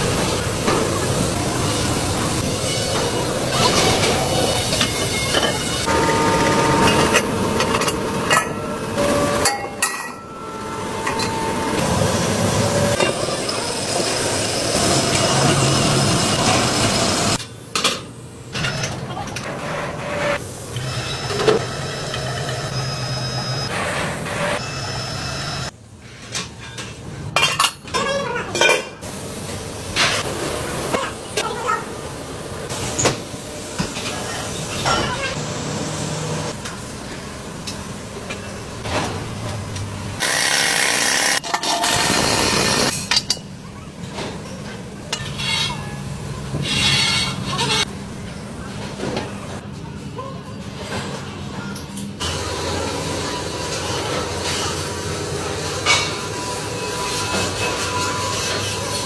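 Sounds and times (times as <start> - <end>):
machine humming: 0.0 - 17.4
power tool working metal: 40.2 - 42.9.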